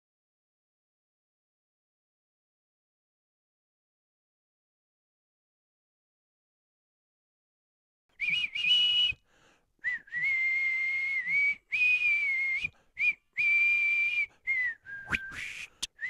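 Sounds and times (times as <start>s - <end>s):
person whistling slow tune: 8.2s - 16.0s.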